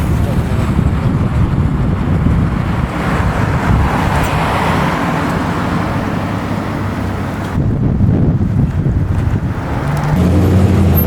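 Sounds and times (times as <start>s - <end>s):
steady low rumble: 0.0s - 4.1s
car driving past: 9.7s - 11.0s.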